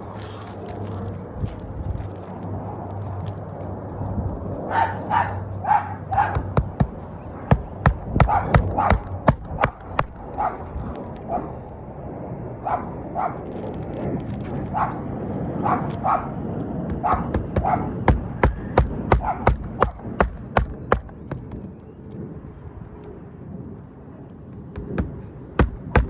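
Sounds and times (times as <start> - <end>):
dog barking: 4.7 - 6.6, 8.2 - 9.1, 10.4 - 10.7, 12.6 - 13.4, 14.8 - 15.0, 15.6 - 16.4, 17.0 - 18.0, 19.2 - 19.6
sharp knocks: 6.1 - 10.2, 16.9 - 21.6, 24.8 - 26.0.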